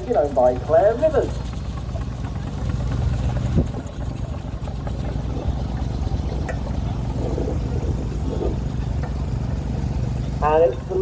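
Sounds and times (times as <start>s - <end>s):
steam traction engines rumbling: 0.0s - 11.0s.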